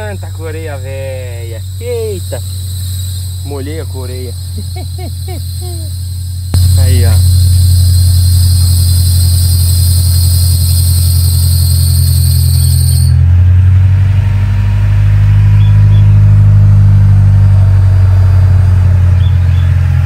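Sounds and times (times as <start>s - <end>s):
car engine idling: 0.0s - 13.2s
high-pitched drive belt squeal: 0.0s - 13.3s.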